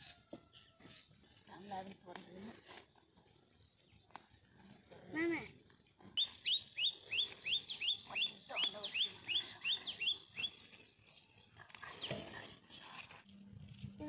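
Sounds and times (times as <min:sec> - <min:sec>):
bird chirping rapidly: 0:06.2 - 0:11.6.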